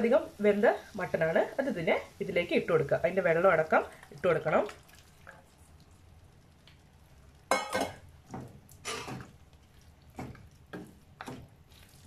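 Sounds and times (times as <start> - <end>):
spoon clinking and scraping pan: 7.5 - 8.0, 8.8 - 9.3.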